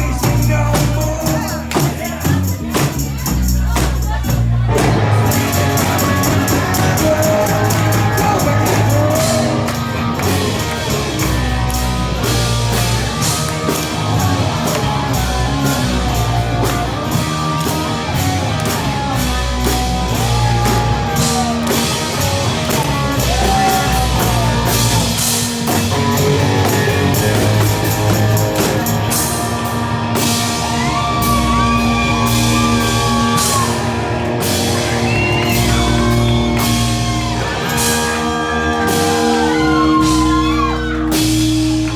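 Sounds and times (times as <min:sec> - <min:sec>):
rock band playing: 0:00.0 - 0:41.9
person singing: 0:04.7 - 0:10.4.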